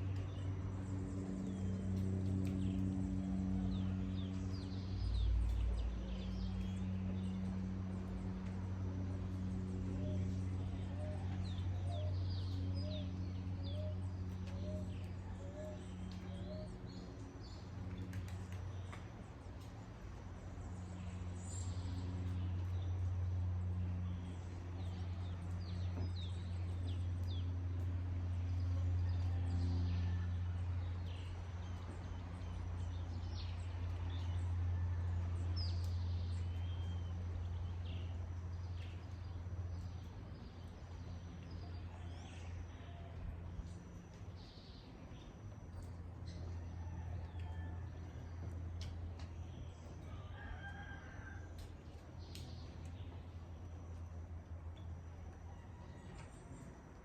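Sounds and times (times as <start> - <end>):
low hum: 0.0 - 57.0.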